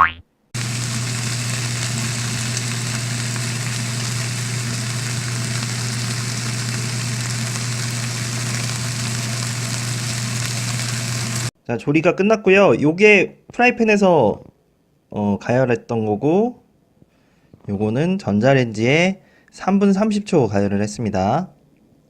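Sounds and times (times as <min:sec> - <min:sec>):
pork sizzling in a frying pan: 0:00.6 - 0:11.5.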